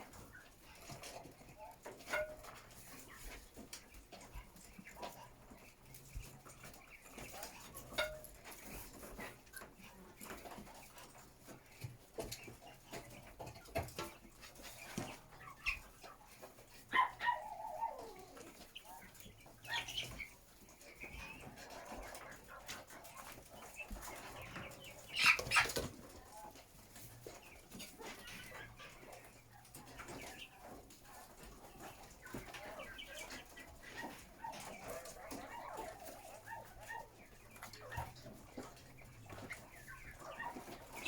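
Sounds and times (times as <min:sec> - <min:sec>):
chickens clucking: 0:00.0 - 0:41.0
chicken squawking: 0:16.8 - 0:20.2, 0:24.9 - 0:25.9.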